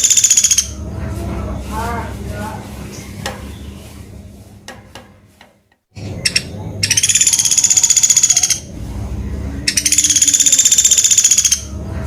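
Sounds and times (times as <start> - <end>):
woodpecker trilling call: 0.0 - 0.8, 6.2 - 8.7, 9.7 - 11.7.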